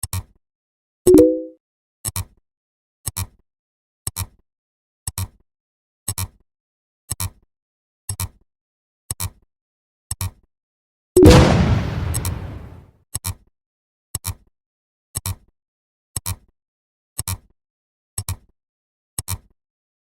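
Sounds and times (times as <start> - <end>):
pitched blip: 11.2 - 12.8
sharp double clicks: 11.2 - 12.8.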